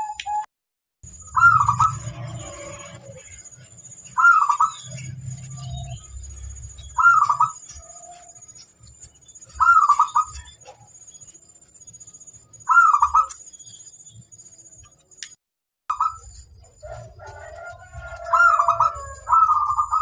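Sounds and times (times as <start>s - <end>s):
dove cooing: 9.6s - 10.8s, 16.6s - 20.0s.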